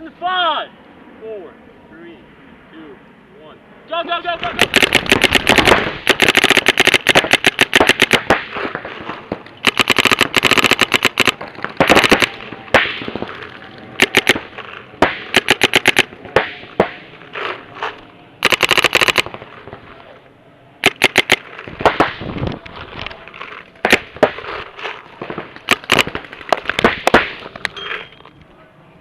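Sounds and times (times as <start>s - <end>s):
paintball markers firing: 4.4s - 19.8s, 20.8s - 27.8s.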